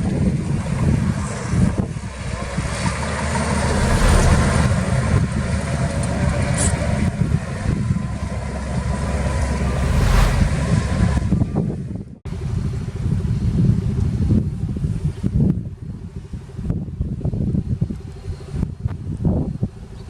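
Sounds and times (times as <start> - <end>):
diesel engine running under load: 0.0 - 20.0.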